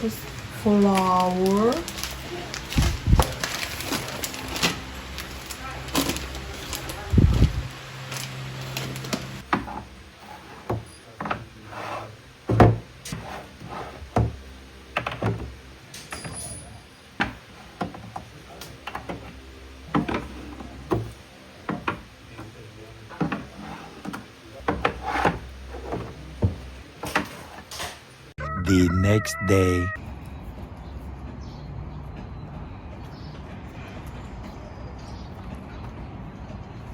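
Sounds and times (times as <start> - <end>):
knocks and rubbing on wood: 12.5 - 14.4.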